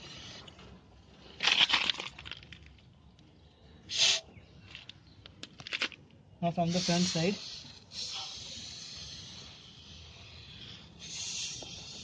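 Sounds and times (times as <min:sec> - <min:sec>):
aerosol spray hissing: 0:06.7 - 0:09.4, 0:11.0 - 0:12.0.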